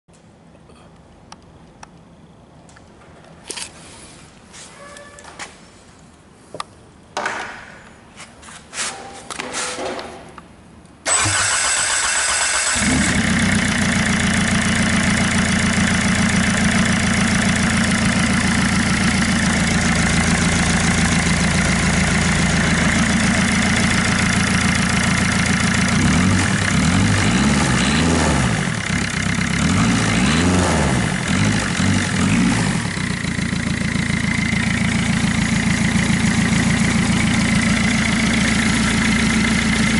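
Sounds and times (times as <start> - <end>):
diesel engine starting and idling: 11.0 - 39.9
engine revving: 11.1 - 16.0, 25.7 - 33.3.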